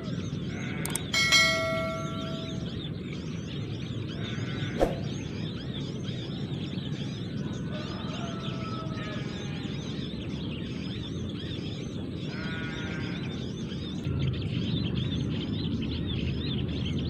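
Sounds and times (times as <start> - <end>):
small birds chirping: 0.0 - 17.0
sharp click: 0.8 - 1.1.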